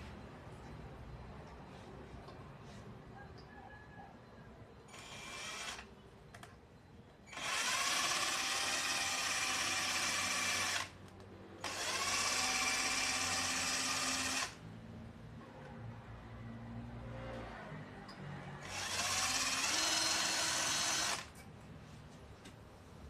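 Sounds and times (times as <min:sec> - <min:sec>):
electric drill whining: 0:04.9 - 0:05.9, 0:07.3 - 0:10.9, 0:11.6 - 0:14.6, 0:18.6 - 0:21.3.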